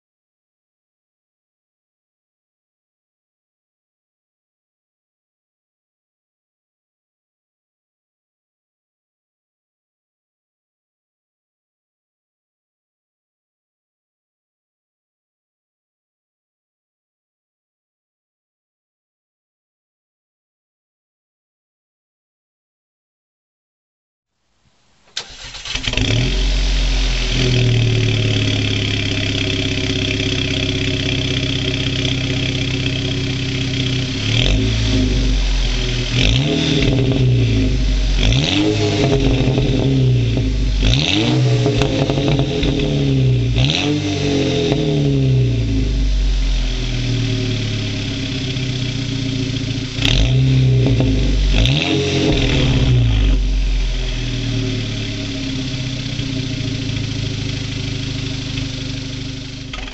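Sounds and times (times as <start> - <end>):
car exhaust revving: 25.2 - 59.9.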